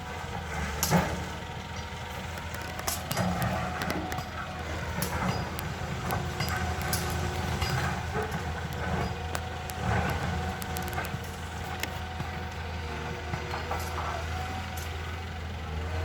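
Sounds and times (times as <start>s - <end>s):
excavator diesel engine running: 0.0s - 16.0s
sharp metallic clinks: 0.8s - 11.9s.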